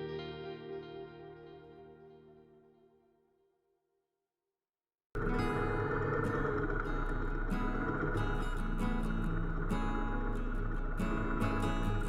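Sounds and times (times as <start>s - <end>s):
loud steady deep hum: 5.2s - 12.0s.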